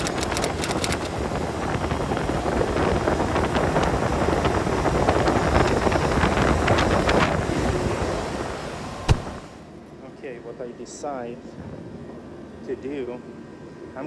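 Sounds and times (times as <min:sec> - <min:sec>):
compressor and fan running: 0:00.0 - 0:14.0.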